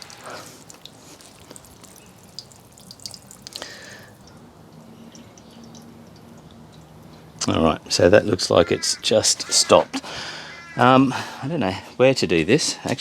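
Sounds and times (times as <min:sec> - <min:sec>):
water draining and dripping: 0:00.0 - 0:09.0.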